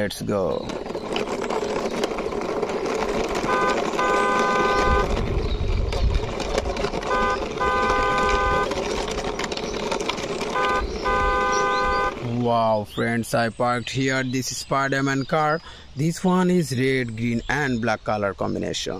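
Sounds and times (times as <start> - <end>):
toy car wheels rolling on concrete: 0.0 - 18.9
car horn toots: 3.3 - 5.4, 6.2 - 9.4, 10.0 - 12.2.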